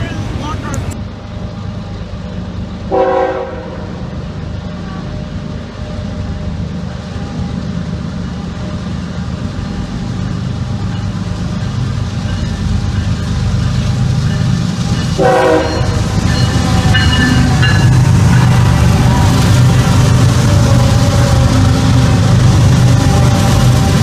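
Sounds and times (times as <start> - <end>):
diesel locomotive engine drone: 0.0 - 24.0
train horn blast: 2.9 - 4.0, 15.2 - 21.9.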